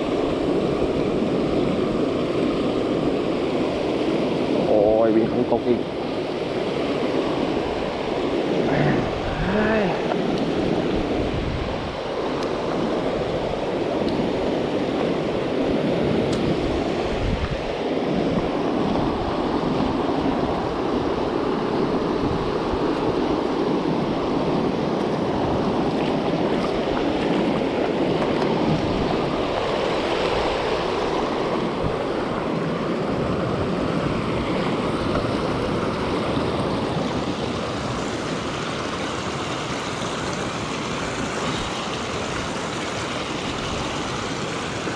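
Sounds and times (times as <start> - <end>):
fast-flowing stream rushing: 0.0 - 44.9.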